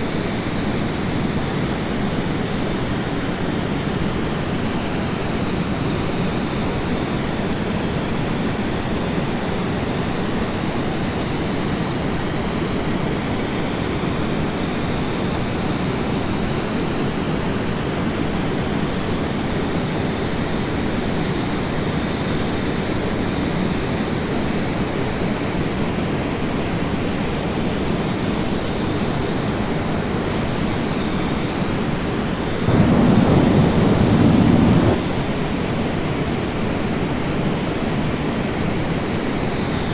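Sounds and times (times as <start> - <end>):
aircraft engine noise: 32.6 - 35.3
airflow rushing: 32.7 - 35.1.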